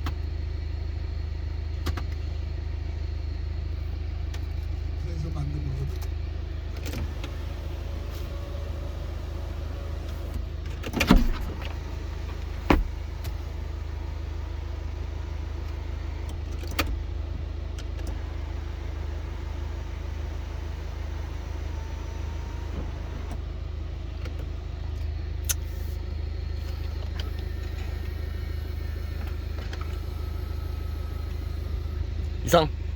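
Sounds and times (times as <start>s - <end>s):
diesel engine idling: 0.0s - 32.9s.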